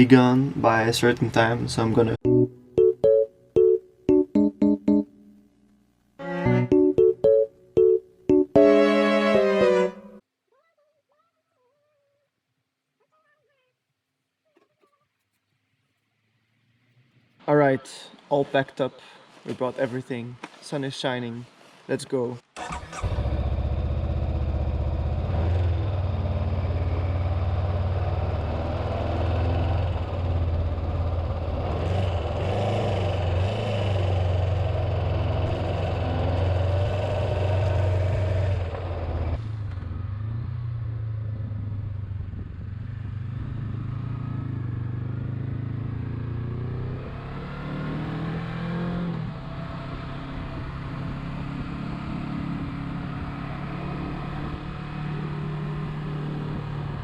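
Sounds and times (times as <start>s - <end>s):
motorcycle engine revving: 22.6s - 57.0s.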